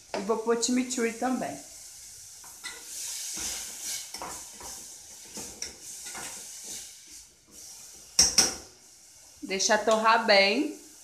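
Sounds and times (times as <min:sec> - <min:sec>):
vegetables sizzling in oil: 0:00.0 - 0:11.0
tongs scraping and knocking pan: 0:02.4 - 0:08.7.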